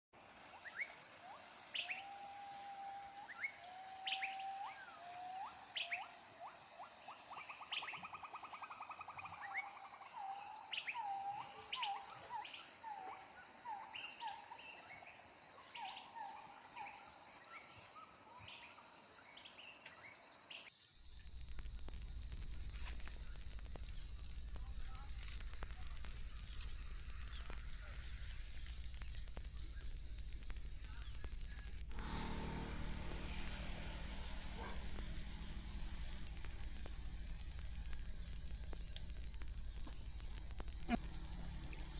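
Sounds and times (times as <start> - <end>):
steady high hiss: 0.2 - 41.9
low rumbling noise: 21.0 - 41.9.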